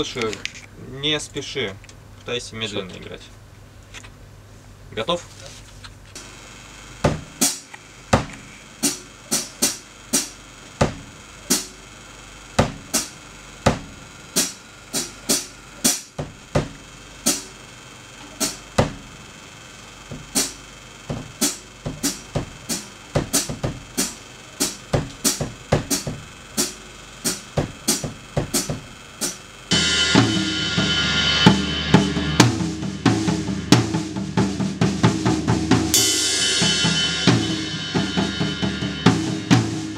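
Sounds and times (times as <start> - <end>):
acoustic drum kit playing: 6.2 - 11.9, 12.5 - 17.6, 18.2 - 19.2, 20.0 - 39.9.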